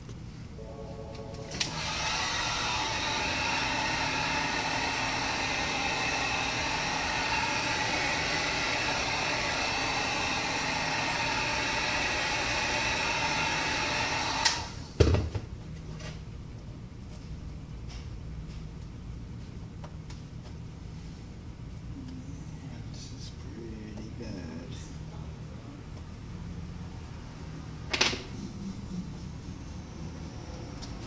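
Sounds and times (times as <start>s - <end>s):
heat gun blowing: 1.6s - 14.8s.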